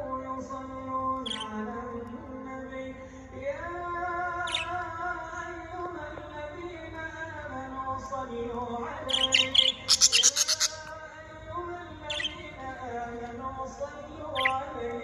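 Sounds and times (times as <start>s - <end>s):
small birds chirping: 4.4s - 4.8s, 9.1s - 11.0s, 12.0s - 12.6s, 14.4s - 14.6s.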